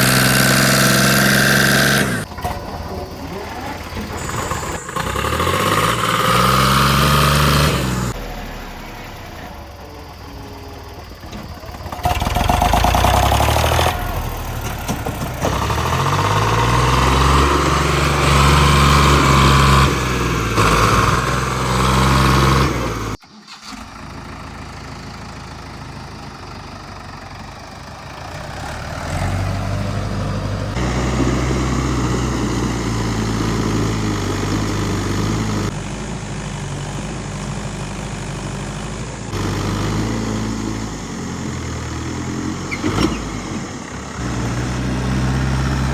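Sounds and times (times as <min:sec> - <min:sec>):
diesel tractor engine revving: 0:00.0 - 0:45.9
steady engine running: 0:00.0 - 0:45.9.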